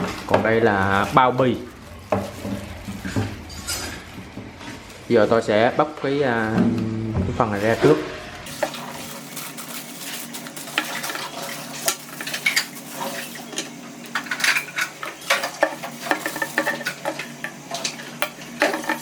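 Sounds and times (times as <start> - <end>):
plastic wrapping crinkling: 8.5 - 17.3.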